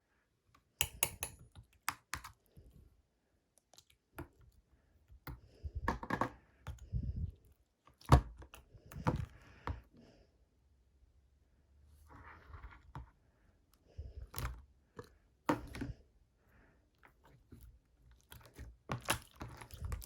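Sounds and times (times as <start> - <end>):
clicks and taps: 0.8 - 2.4.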